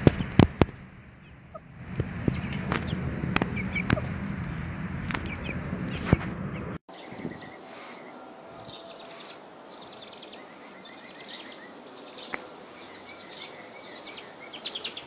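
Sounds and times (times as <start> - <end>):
birds chirping trills: 1.0 - 15.0.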